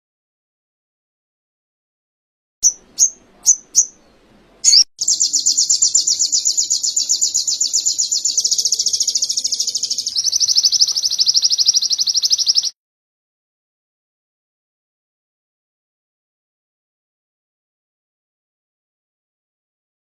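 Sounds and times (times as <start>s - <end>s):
songbird chirps and trills: 2.6s - 12.8s.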